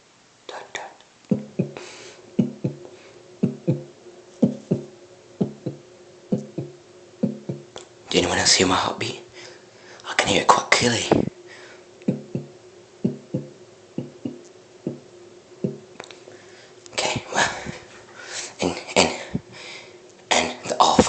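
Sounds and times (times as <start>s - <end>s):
mouthed heartbeat thumps: 1.3s - 1.8s, 2.4s - 7.7s, 11.1s - 11.3s, 12.0s - 15.0s, 15.6s - 15.9s.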